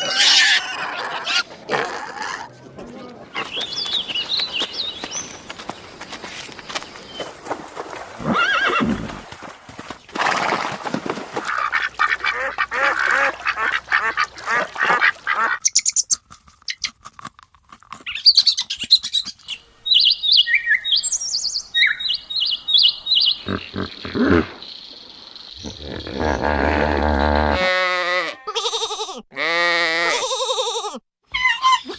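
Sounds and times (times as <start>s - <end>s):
animal calls: 23.1s - 24.6s.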